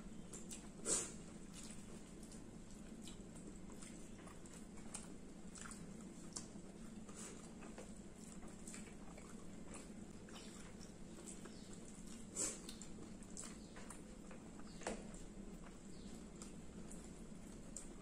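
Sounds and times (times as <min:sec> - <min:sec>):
low steady hum: 0:00.0 - 0:18.0
chewing and wet mouth clicks: 0:00.2 - 0:18.0.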